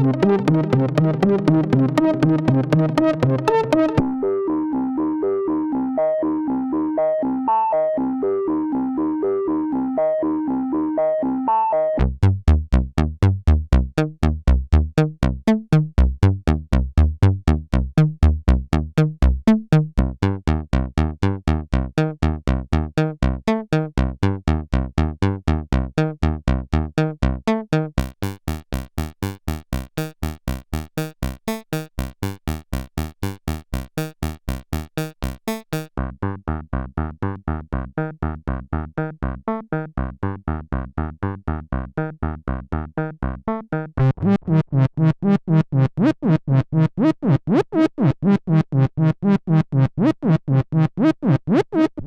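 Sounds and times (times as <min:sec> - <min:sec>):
synthesizer sequenced pattern: 0:00.0 - 0:36.0.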